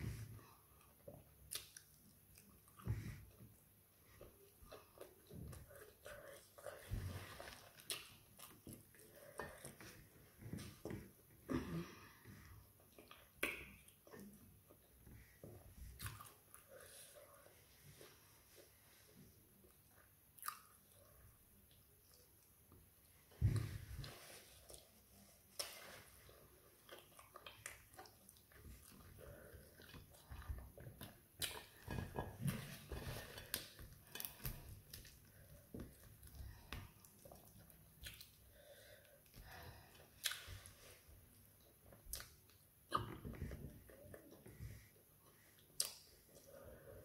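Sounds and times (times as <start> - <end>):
person chewing: 0.8 - 3.5, 4.1 - 10.8, 15.9 - 17.2, 19.6 - 22.4, 23.5 - 38.6, 39.2 - 41.0, 41.6 - 44.5, 45.2 - 46.6.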